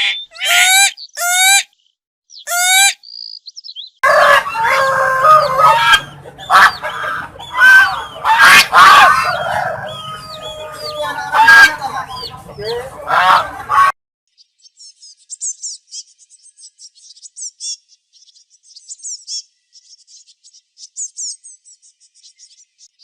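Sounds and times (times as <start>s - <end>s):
harsh bird calls: 0.0s - 13.9s
many birds calling: 0.0s - 14.0s.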